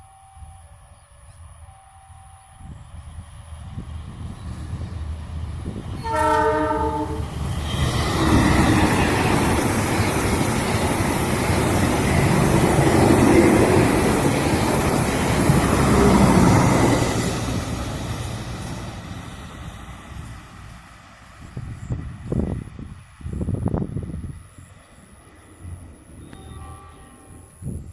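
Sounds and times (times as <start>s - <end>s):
train running on rails: 0.0s - 27.9s
train horn: 6.0s - 7.4s, 26.2s - 27.6s.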